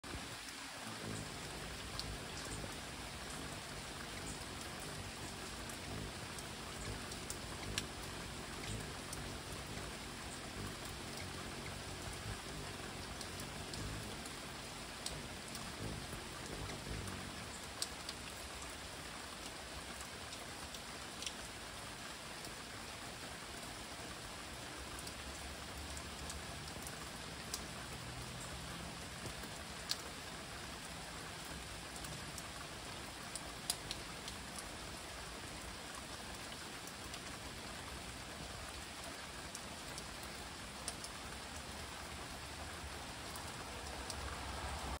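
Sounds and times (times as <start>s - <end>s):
rain falling through trees: 0.0s - 45.0s
drops ticking close by: 1.0s - 18.2s.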